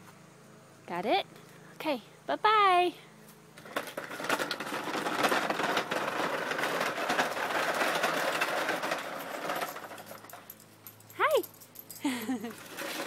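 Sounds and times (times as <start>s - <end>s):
toy truck rattling over ground: 3.6s - 10.6s, 12.3s - 13.0s.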